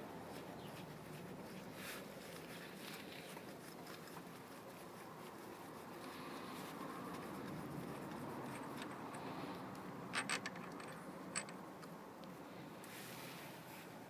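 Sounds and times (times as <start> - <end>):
hand tools clinking: 10.1 - 11.7.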